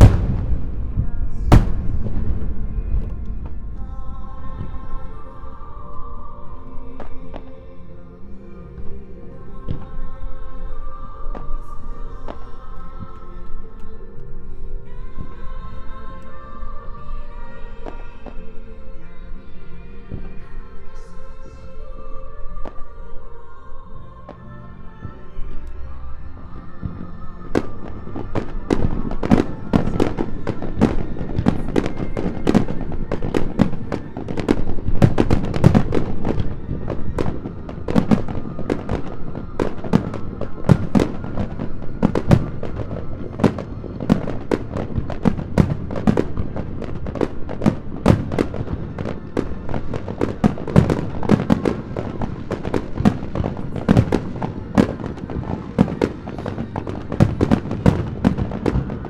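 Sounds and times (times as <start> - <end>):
fireworks bangs: 0.0 - 7.5, 26.8 - 59.0
music playing: 0.0 - 59.0.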